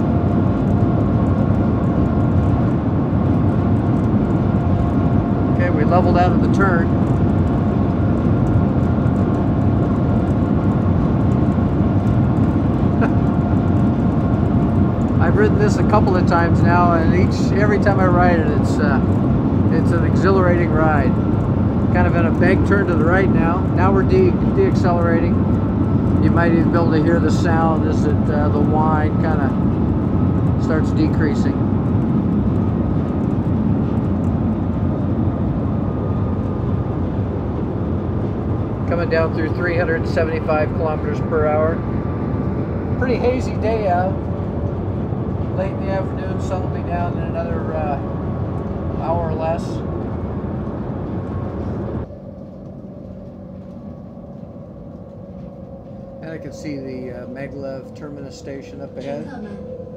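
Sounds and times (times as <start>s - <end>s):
faint steady whine: 0.0s - 59.9s
train rumble and rushing air: 0.0s - 59.9s.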